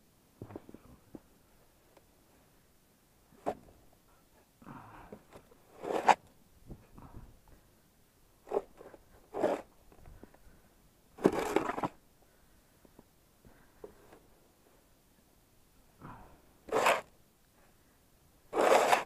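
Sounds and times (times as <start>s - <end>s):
snow shovel crunching in snow: 5.7s - 6.2s, 9.3s - 9.7s, 16.7s - 17.1s, 18.5s - 19.0s.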